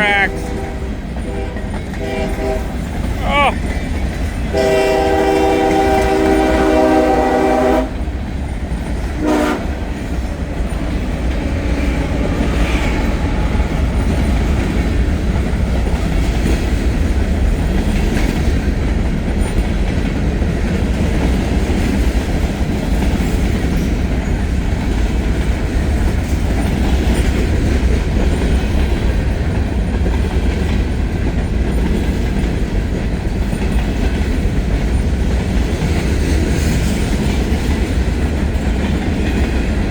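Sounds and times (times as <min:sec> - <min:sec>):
locomotive air horn: 0:00.0 - 0:02.9, 0:04.5 - 0:08.0, 0:09.2 - 0:09.9
freight cars rumbling past: 0:08.0 - 0:19.6.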